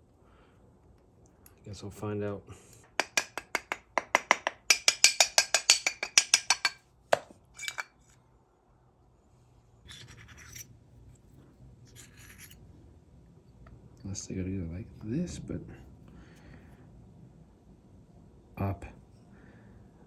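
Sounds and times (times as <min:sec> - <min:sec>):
handling of small parts: 0:02.8 - 0:08.2, 0:09.8 - 0:12.7.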